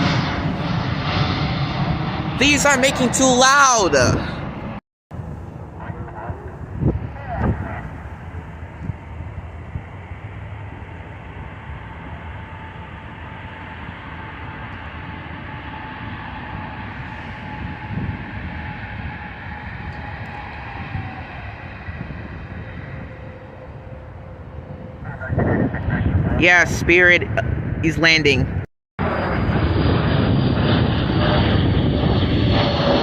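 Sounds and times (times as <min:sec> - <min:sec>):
jet engines rumbling: 0:00.0 - 0:33.0.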